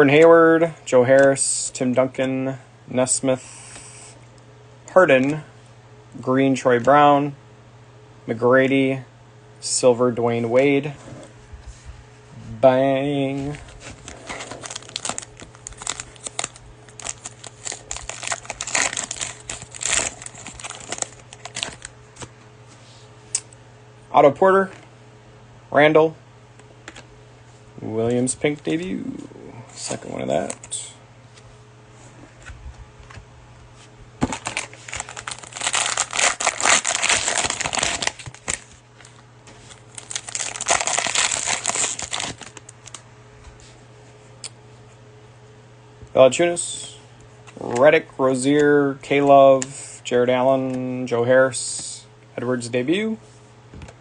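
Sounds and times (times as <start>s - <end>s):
cellophane wrapper crinkling and tearing: 13.8s - 21.9s, 34.2s - 43.0s.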